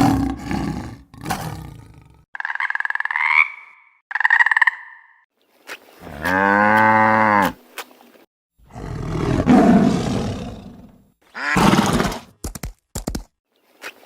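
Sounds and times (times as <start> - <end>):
animal rough roar: 0.0 - 2.2, 8.7 - 12.2
animal pitched call: 11.4 - 11.9.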